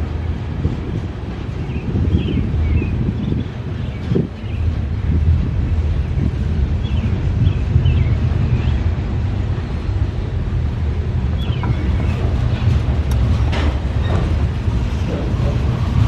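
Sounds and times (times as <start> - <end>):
freight train rumbling past: 0.0 - 16.0
wind buffeting microphone: 0.0 - 16.0.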